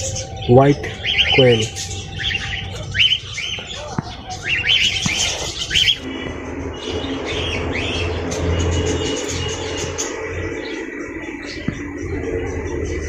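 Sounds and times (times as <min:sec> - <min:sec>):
birds chirping and squawking: 0:00.0 - 0:13.0.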